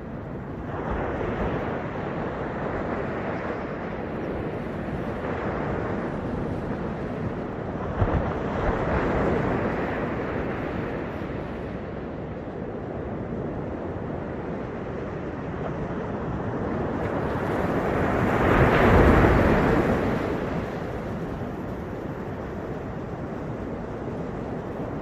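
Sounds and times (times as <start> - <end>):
ocean surf breaking: 16.1 - 25.0.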